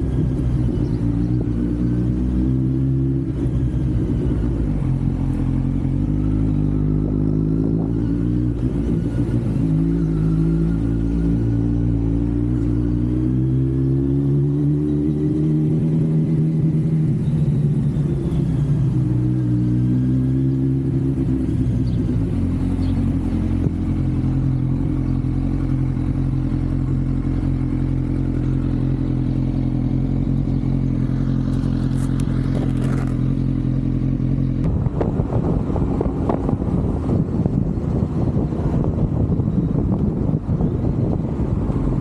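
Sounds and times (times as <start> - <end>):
wind noise on microphone: 0.0 - 10.2, 34.6 - 42.0
motorcycle engine and exhaust: 0.0 - 42.0.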